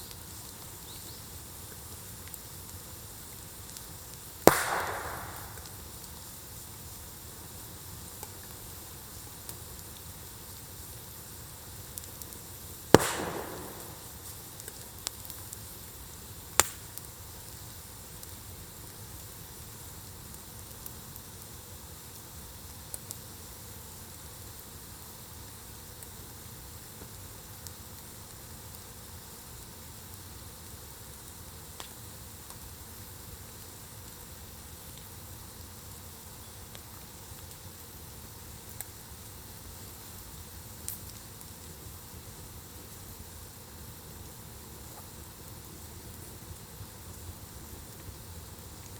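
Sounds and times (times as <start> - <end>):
sharp pops from fire: 0.0 - 24.8, 25.5 - 48.9
campfire crackling: 0.0 - 48.9
small snap: 4.5 - 5.8, 13.0 - 14.8, 16.6 - 16.8.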